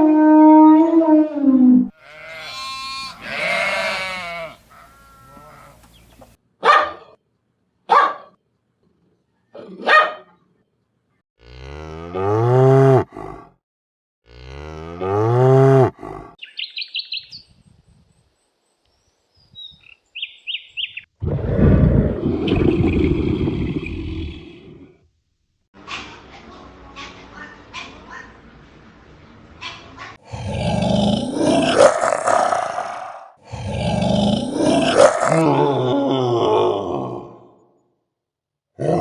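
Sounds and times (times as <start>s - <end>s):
animal bleating: 1.9s - 5.8s
cattle mooing: 1.9s - 5.8s, 11.4s - 13.5s, 14.3s - 16.4s
bird chirps: 16.4s - 21.2s.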